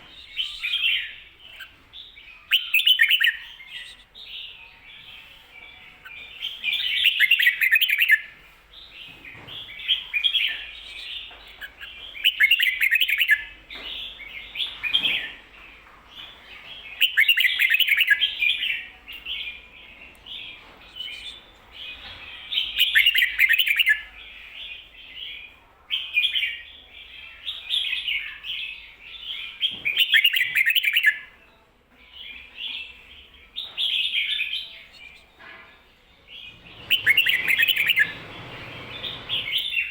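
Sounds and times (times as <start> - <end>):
bird singing: 0.0 - 39.9
soft chattering bird notes: 33.7 - 39.9.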